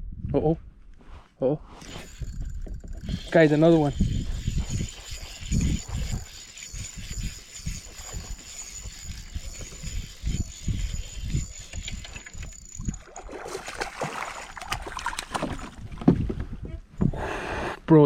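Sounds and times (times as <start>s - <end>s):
spinning reel cranking: 1.8s - 15.8s.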